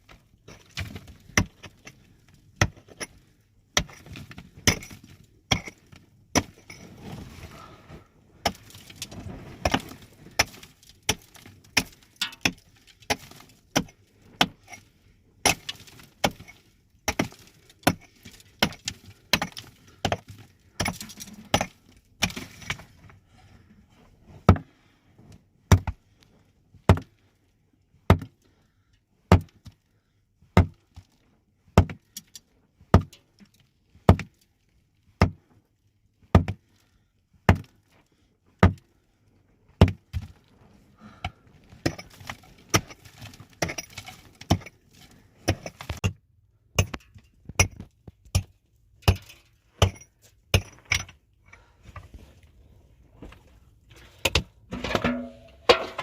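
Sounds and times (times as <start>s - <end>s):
hand tool striking hard surface: 54.7s - 56.0s.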